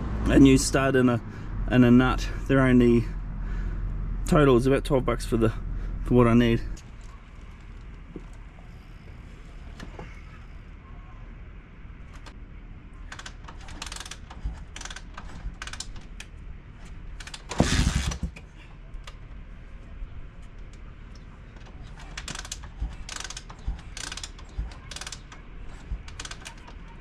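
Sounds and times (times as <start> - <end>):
hand tools clicking on metal: 21.8 - 26.8.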